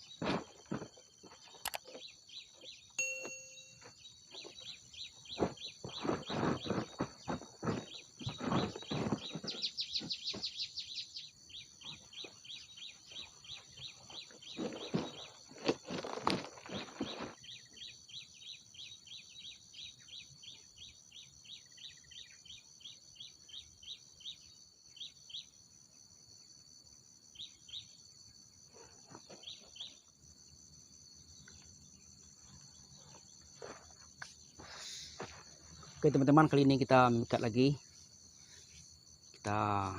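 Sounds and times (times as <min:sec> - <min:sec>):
bird chirps: 0:00.0 - 0:25.6, 0:27.4 - 0:28.1, 0:28.7 - 0:30.1
rustling: 0:05.3 - 0:10.6, 0:14.1 - 0:17.4.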